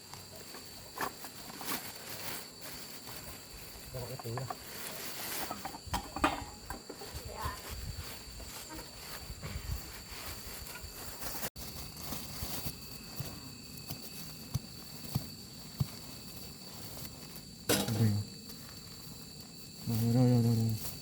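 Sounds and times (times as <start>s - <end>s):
insects chirring: 0.0s - 21.0s
rustling and handling knocks: 4.2s - 7.3s, 17.6s - 18.2s.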